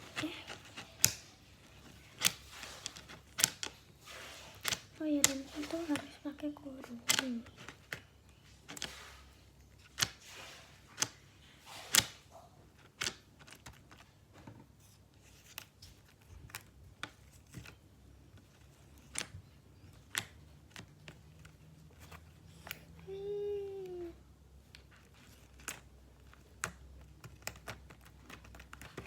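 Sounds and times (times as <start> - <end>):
slime squelching: 0.0 - 13.1.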